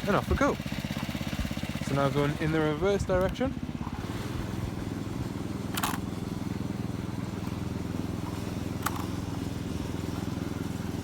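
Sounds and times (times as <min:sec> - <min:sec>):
miniature locomotive engine running: 0:07.3 - 0:09.3.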